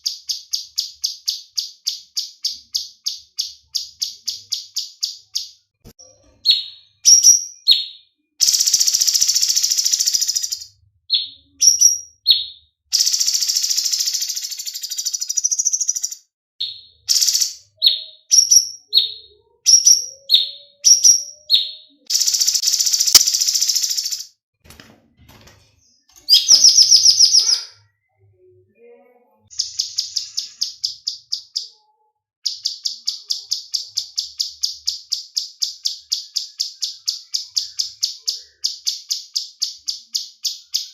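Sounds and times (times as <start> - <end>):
songbird singing: 14.9 - 24.1, 26.2 - 28.2, 32.5 - 40.9.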